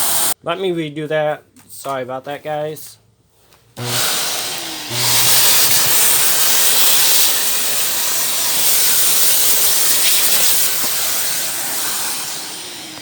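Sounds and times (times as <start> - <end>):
vacuum cleaner hissing: 0.0 - 0.4, 3.8 - 13.0.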